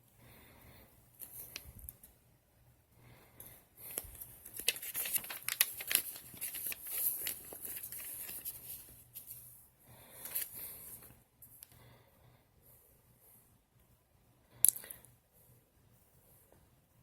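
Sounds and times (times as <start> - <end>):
paper crinkling and rustling: 3.9 - 9.5.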